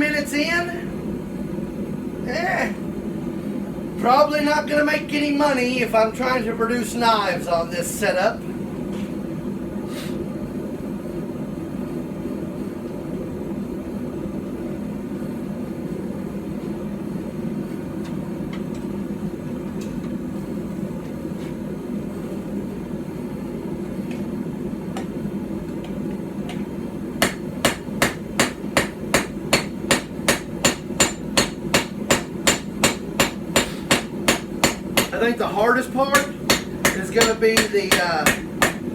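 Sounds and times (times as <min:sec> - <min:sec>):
hammer striking hot steel on anvil: 0:27.2 - 0:35.4, 0:36.1 - 0:38.9.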